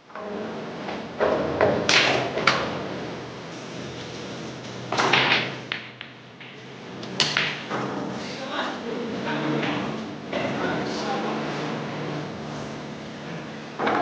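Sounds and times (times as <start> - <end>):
billiard balls clacking: 0.9 - 2.9, 4.0 - 8.2, 13.8 - 14.0.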